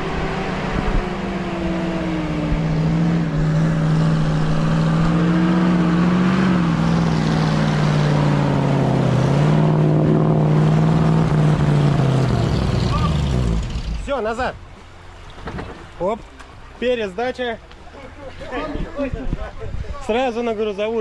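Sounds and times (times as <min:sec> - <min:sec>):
truck engine under load: 0:00.0 - 0:14.1.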